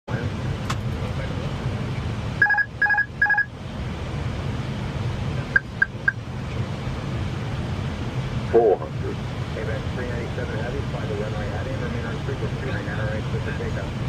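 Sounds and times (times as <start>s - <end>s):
cockpit alert beeps: 5.6s - 6.2s.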